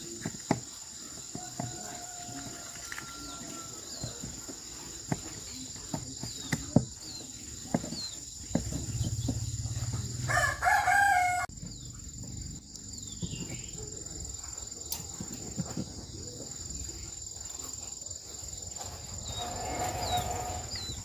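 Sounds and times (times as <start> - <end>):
high insect whine: 0.0 - 21.0
rooster crowing: 1.4 - 3.9, 10.2 - 11.5.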